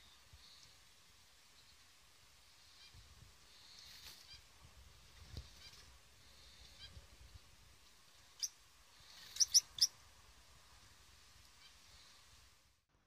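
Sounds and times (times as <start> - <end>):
faint high bird chirps: 5.4 - 7.0, 8.2 - 10.0
loud sharp bird calls: 8.4 - 9.9.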